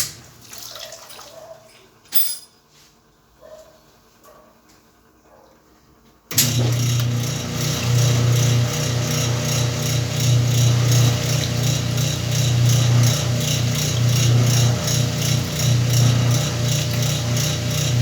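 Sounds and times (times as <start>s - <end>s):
washing machine motor hum: 6.3s - 18.0s
washing machine pulsing churn: 6.3s - 18.0s.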